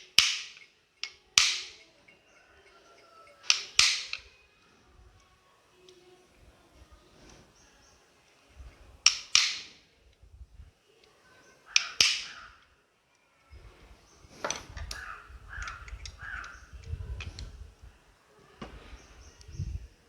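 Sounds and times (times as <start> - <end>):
sharp metal clicks: 0.0 - 2.1, 2.9 - 6.0, 9.0 - 10.2, 11.7 - 12.6, 14.3 - 17.5.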